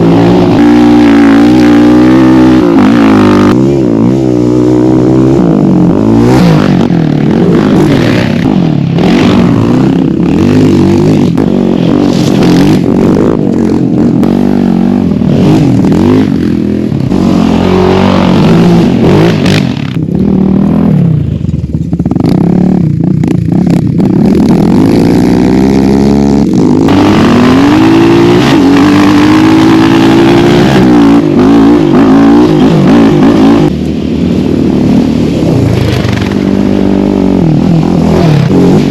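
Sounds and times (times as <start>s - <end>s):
atv engine revving: 0.0s - 38.9s
engine clatter: 4.4s - 33.9s.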